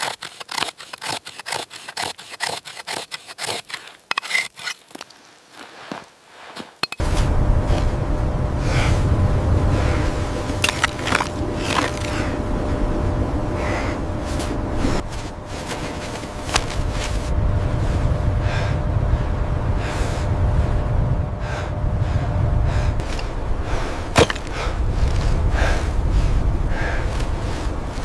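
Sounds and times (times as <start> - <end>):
footsteps crunching in snow: 4.8 - 8.0, 9.8 - 12.8, 13.5 - 18.7
low wind rumble: 7.0 - 28.0.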